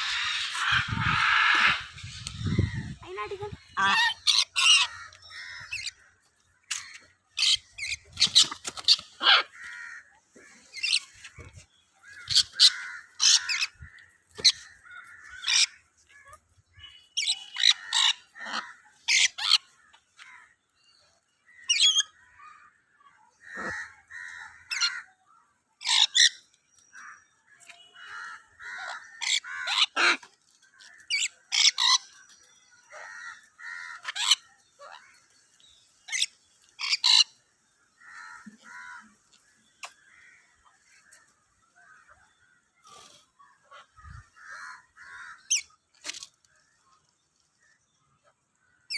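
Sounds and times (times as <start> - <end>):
parrots squawking: 0.0 - 6.1, 6.7 - 10.1, 12.0 - 15.9, 17.2 - 20.4, 23.4 - 25.1, 25.8 - 26.4, 27.7 - 32.2, 32.9 - 35.2, 36.1 - 37.4.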